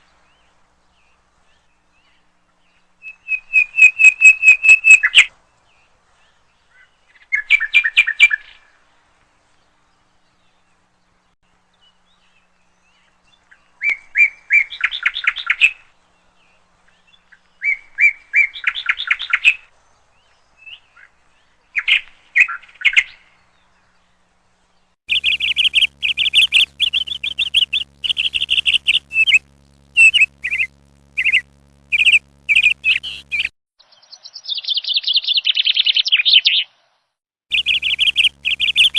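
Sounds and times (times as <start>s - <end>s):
faint low hum: 23.3s - 33.5s, 37.5s - 38.9s
bird rattling calls: 25.1s - 29.4s, 37.5s - 38.9s.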